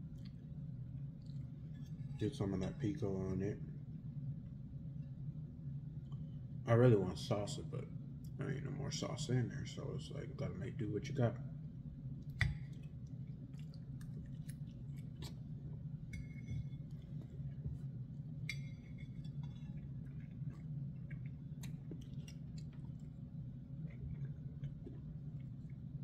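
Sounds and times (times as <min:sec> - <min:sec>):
low hum: 0:00.0 - 0:26.0
person chewing food: 0:12.2 - 0:26.0.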